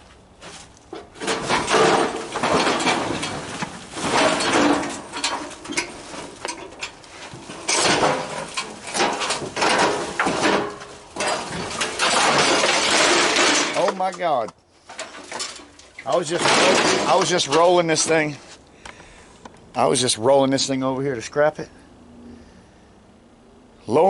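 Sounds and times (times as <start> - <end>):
metal grill rattling while rolled: 0.9 - 14.4, 15.0 - 18.4.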